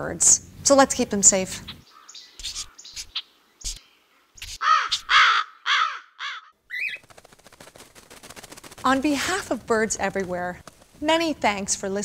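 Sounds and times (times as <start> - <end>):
bird calling: 1.6 - 7.2.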